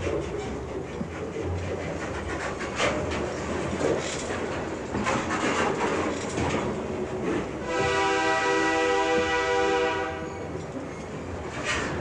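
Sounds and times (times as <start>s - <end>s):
train wheels clattering over rails: 0.0s - 12.0s
train horn: 7.6s - 10.5s.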